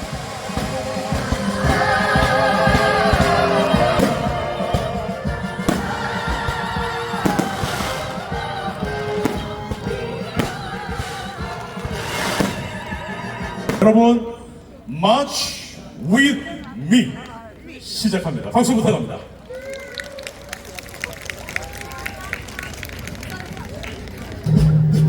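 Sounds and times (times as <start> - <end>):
orchestral music: 0.0 - 14.3, 24.5 - 25.0
operatic singing with vibrato: 0.0 - 15.2.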